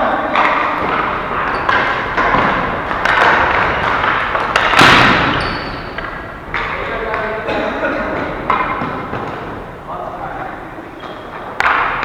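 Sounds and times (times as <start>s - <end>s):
constant din: 0.0s - 12.0s
sticks and ball tapping: 0.4s - 9.7s
loud echoing bang: 0.4s - 10.8s.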